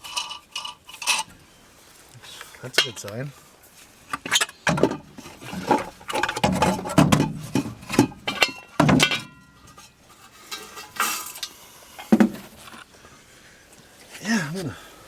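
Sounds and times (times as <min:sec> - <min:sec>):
metal tools clinking and clanking: 0:00.0 - 0:01.3, 0:02.7 - 0:03.1, 0:04.2 - 0:12.1.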